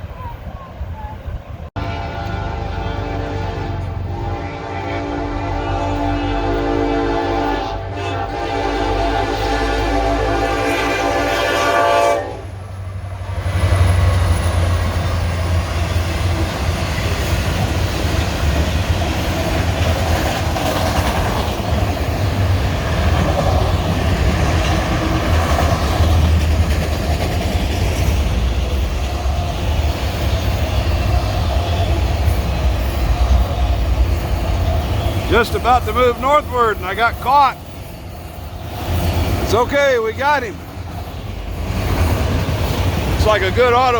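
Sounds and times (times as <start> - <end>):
train rumbling past: 0.0 - 43.9
locomotive air horn: 1.8 - 12.6, 29.5 - 33.8, 34.9 - 36.8
wheels on rails: 12.9 - 43.9.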